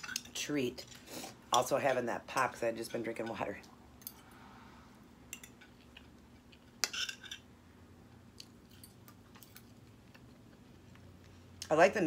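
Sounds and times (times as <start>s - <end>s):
low steady hum: 0.0s - 12.0s
chewing food: 8.3s - 11.7s.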